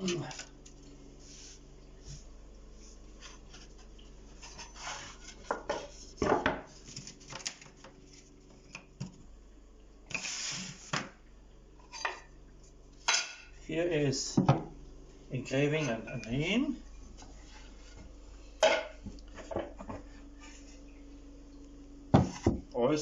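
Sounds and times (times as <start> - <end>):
rub or scrape: 4.4 - 6.2, 10.1 - 11.0.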